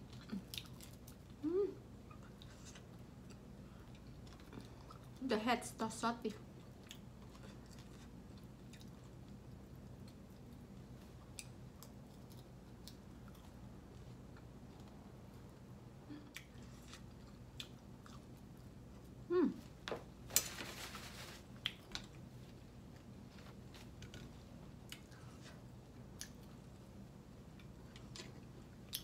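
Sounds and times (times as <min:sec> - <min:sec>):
low steady hum: 0:00.0 - 0:29.0
close-up chewing of food: 0:02.1 - 0:05.2, 0:06.4 - 0:15.4, 0:16.3 - 0:19.2.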